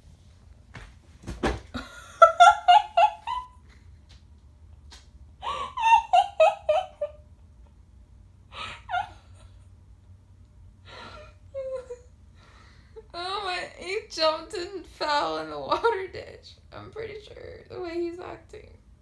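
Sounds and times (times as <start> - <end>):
thump and rustle: 0.7 - 1.8
woman laughing: 1.8 - 3.8, 5.4 - 7.2, 8.6 - 9.7, 10.9 - 12.1.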